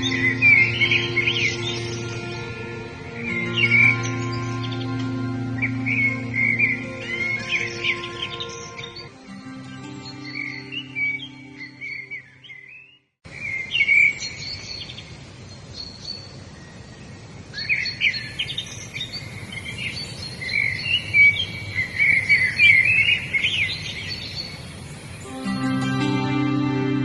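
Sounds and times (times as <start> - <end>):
soft instrumental music: 0.0 - 12.7, 25.2 - 27.0
songbirds chirping and trilling: 0.0 - 27.0
steady outdoor noise: 0.0 - 27.0.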